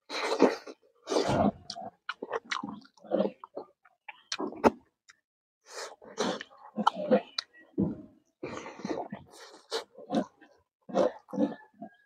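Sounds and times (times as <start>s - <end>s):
chewing and lip smacks: 1.6s - 5.2s.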